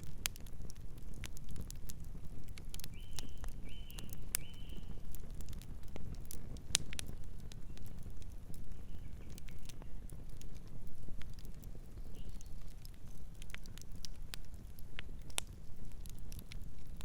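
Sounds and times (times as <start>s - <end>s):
campfire crackling and popping: 0.0s - 17.0s
bird calls: 3.0s - 4.9s.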